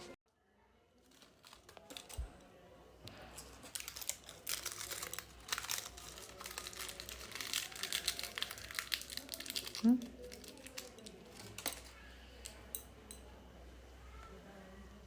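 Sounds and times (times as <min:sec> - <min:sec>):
parrot crunching food: 0:01.0 - 0:02.4, 0:03.1 - 0:12.6.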